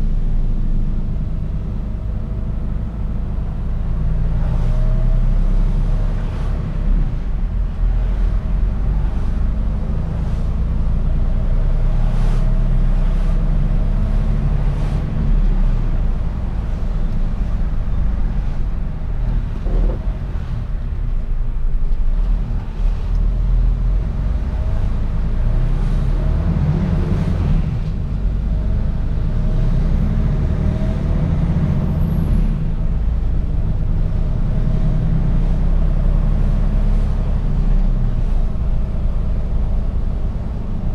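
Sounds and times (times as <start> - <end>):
truck diesel engine rumbling: 0.0 - 40.9.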